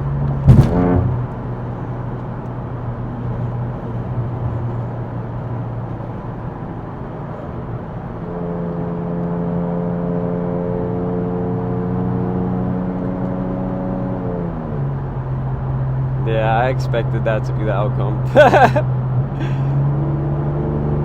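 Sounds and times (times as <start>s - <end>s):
car engine drone: 0.0s - 21.0s
tyre noise inside car: 0.2s - 1.4s, 18.3s - 18.8s.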